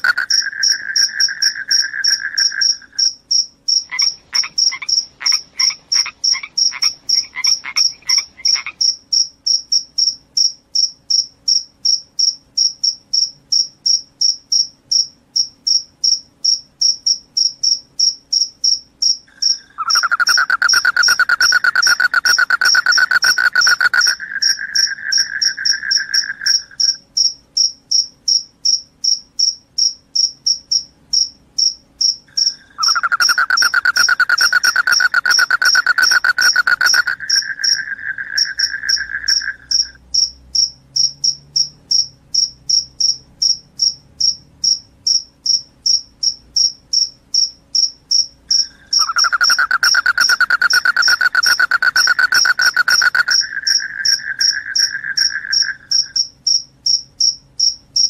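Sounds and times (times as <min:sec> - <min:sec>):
crickets chirping: 0:00.0 - 0:58.0
lower trilling call: 0:03.9 - 0:08.8, 0:19.5 - 0:27.0, 0:32.5 - 0:40.0, 0:48.6 - 0:56.1.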